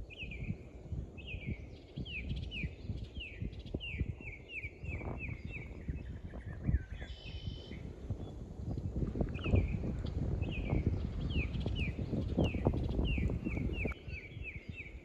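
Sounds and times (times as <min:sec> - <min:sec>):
bird whistling: 0:06.7 - 0:07.8.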